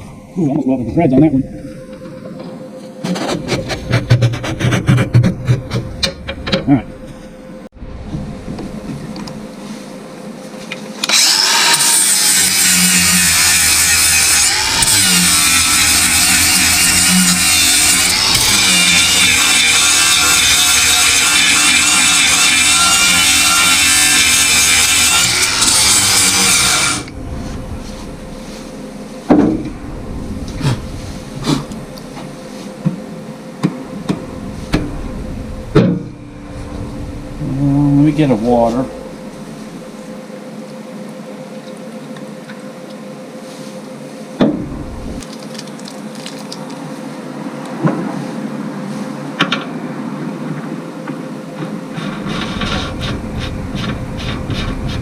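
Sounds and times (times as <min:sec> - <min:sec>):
loud steady noise: 0:00.0 - 0:43.3, 0:43.9 - 0:48.0, 0:50.4 - 0:55.0
power tool running loud: 0:11.0 - 0:32.6.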